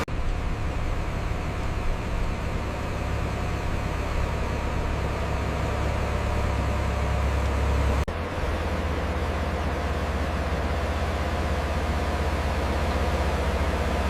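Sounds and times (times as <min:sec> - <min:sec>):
diesel construction machine running: 0:00.0 - 0:14.0.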